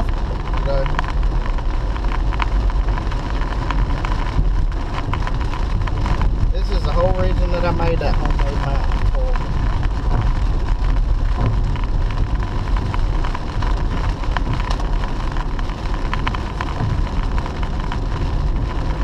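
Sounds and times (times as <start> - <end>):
car road and engine rumble: 0.0 - 19.0
rain ticking on windshield: 0.0 - 19.0.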